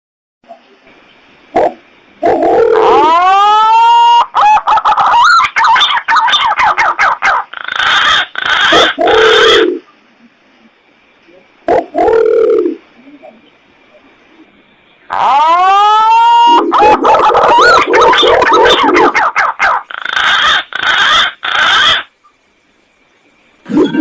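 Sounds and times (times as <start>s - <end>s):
pigeon lure call whistling: 7.8s - 9.8s, 15.1s - 22.1s.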